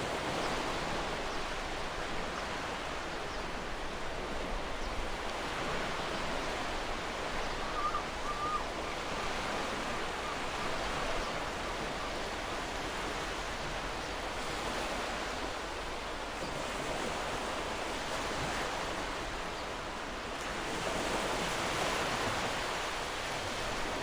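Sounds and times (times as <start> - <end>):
faint short bird calls: 7.4 - 9.2.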